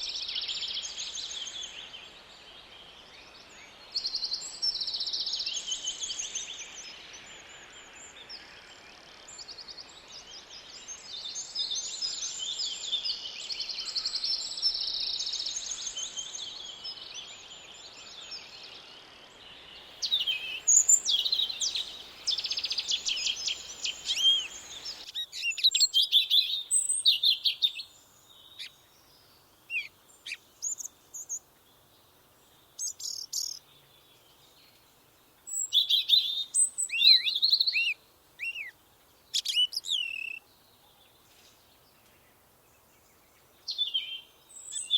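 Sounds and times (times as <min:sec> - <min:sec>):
steady background hiss: 0:00.0 - 0:44.9
songbirds trilling: 0:19.5 - 0:34.9
bird chirps and calls: 0:19.8 - 0:31.4, 0:32.8 - 0:33.7, 0:35.5 - 0:38.7, 0:39.3 - 0:40.5.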